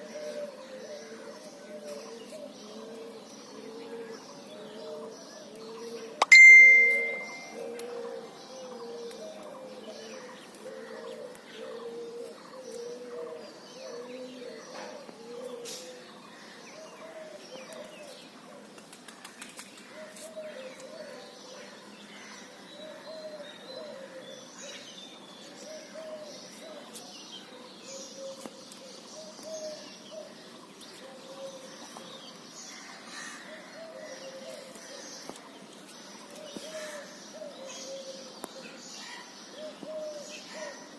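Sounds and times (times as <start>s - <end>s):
short high bird chirps: 6.2s - 7.6s
low warbling bird call: 6.2s - 8.0s.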